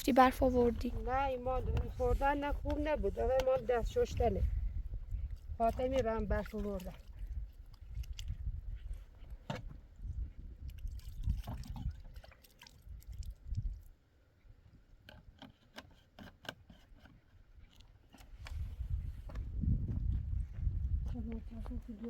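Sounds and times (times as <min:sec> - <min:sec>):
water splashing during hand washing: 0:05.2 - 0:08.6, 0:10.6 - 0:13.9.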